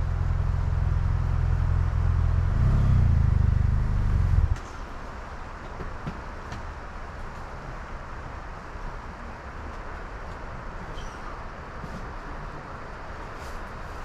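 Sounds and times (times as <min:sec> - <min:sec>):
motorcycle engine rumbling: 0:00.0 - 0:04.6.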